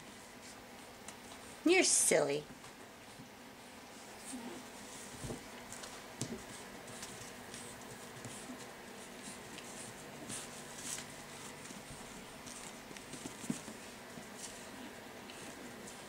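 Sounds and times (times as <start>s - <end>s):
puppy paws pattering: 2.5s - 16.0s.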